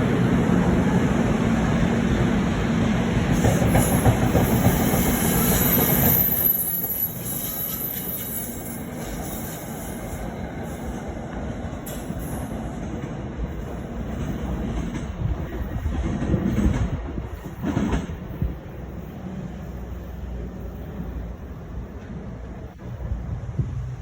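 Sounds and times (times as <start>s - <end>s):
train rumbling on rails: 0.0s - 24.0s
high wheel squeal: 3.6s - 10.9s.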